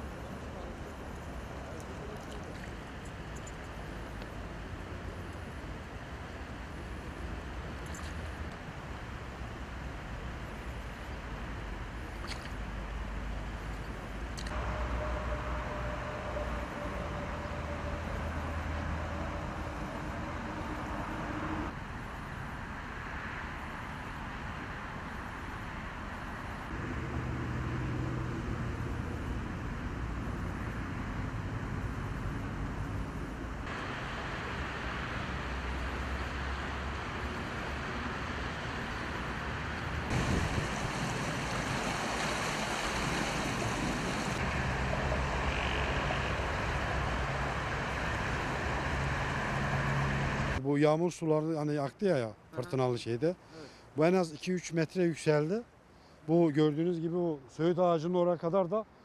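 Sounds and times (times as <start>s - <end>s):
waterfall rushing: 14.6s - 21.7s, 40.1s - 44.9s.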